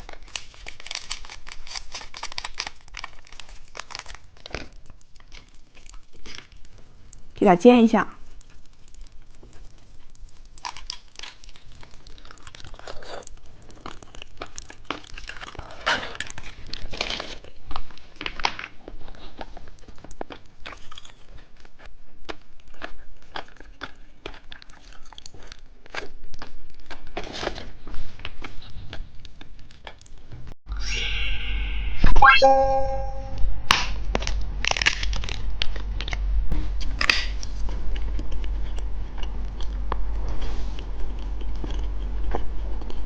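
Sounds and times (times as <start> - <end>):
candy pieces clicking: 0.0 - 6.5
plastic packaging crinkling: 0.0 - 6.8.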